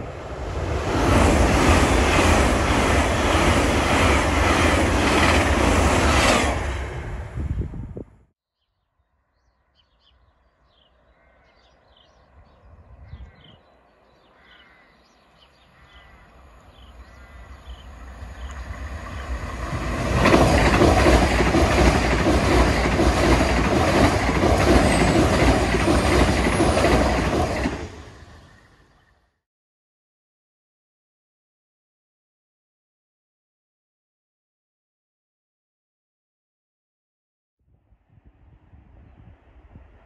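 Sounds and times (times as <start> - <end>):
passenger train passing at speed: 0.0 - 8.2, 12.2 - 29.1, 38.4 - 40.0.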